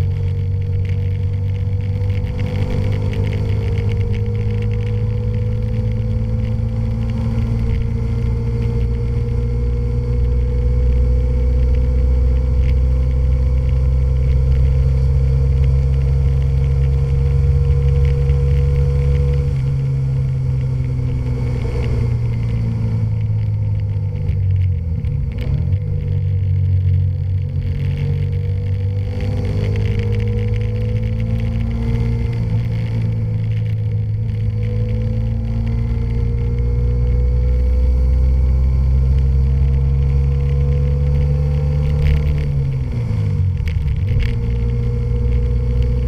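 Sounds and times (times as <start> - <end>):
motorcycle engine rumbling: 0.0 - 46.0.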